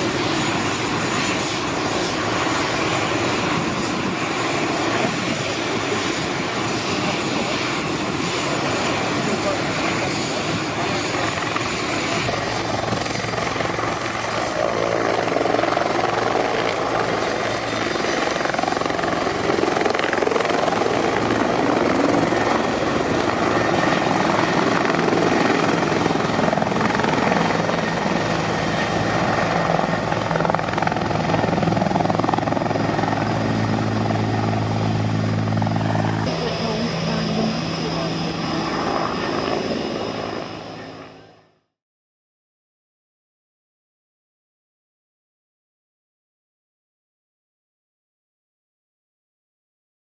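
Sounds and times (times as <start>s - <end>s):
helicopter rotor and engine: 0.0s - 41.8s.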